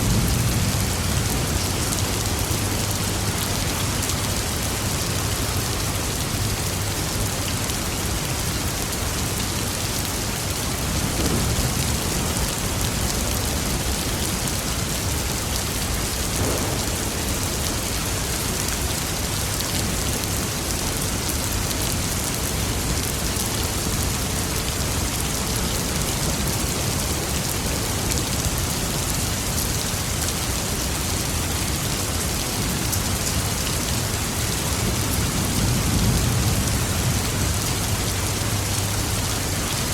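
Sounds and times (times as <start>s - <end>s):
rain pattering: 0.0s - 39.9s
distant thunder: 10.9s - 14.0s, 16.2s - 18.6s.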